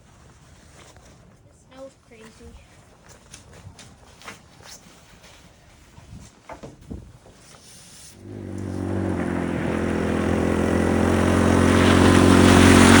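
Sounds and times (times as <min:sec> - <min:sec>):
small engine running: 0:08.2 - 0:13.0.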